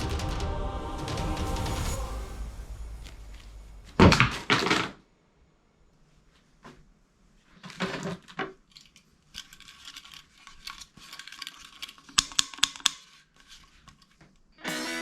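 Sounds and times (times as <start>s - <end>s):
clicking and rattling: 7.6s - 14.3s.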